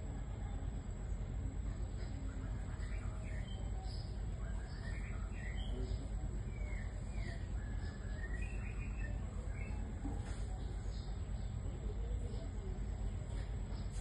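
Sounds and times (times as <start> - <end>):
faint high whine: 0.0 - 14.0
bird singing thin whistled notes: 2.8 - 11.1.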